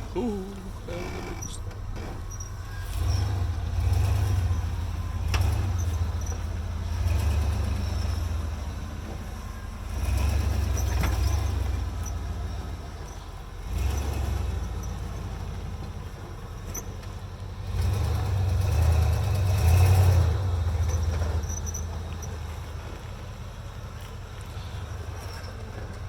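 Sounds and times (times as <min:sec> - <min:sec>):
engine revving in bursts: 0:00.0 - 0:15.8, 0:17.6 - 0:21.5.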